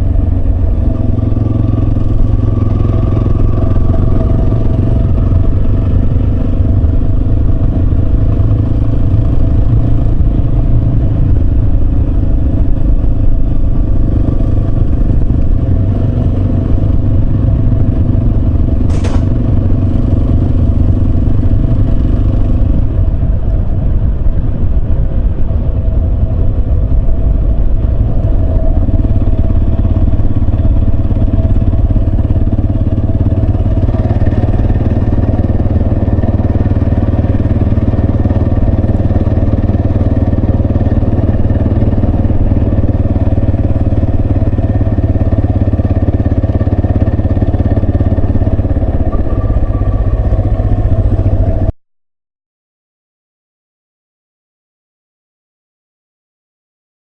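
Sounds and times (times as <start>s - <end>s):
motorcycle engine running: 0.0s - 51.7s
sharp click: 18.9s - 19.4s.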